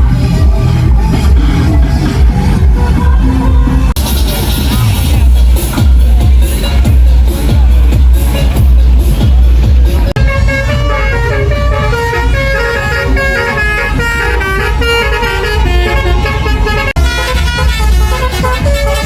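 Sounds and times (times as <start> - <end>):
heavy low rumble: 0.0 - 19.0
musical air horn melody: 10.2 - 19.0.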